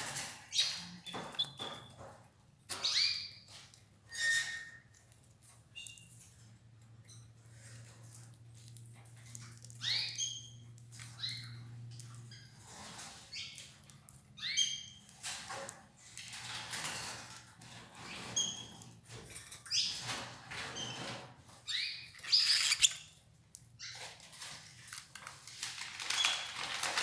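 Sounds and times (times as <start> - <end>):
canaries chirping: 0.0 - 3.7, 9.7 - 13.8, 14.4 - 15.6, 16.4 - 23.2, 23.8 - 24.5
rustling and fluttering: 15.2 - 23.1, 23.9 - 27.0.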